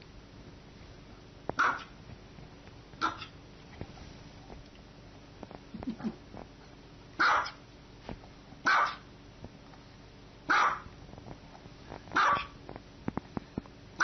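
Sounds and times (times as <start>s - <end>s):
small dog barking: 1.6s - 2.0s, 3.0s - 3.4s, 7.2s - 7.6s, 8.6s - 9.1s, 10.5s - 10.9s, 12.2s - 12.6s.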